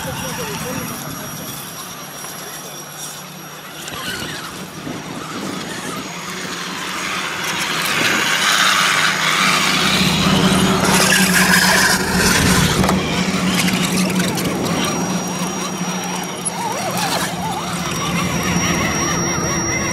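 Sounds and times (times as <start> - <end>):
electric motor and gears whining: 0.0 - 19.9
steady low hum: 0.0 - 19.9.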